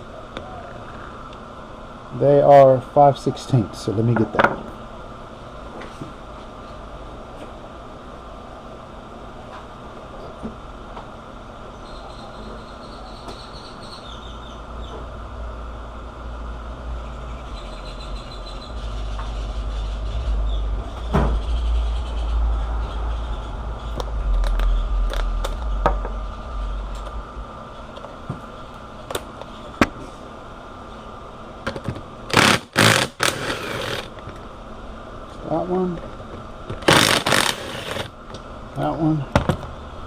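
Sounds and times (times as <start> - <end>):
low rumble: 14.7 - 29.4.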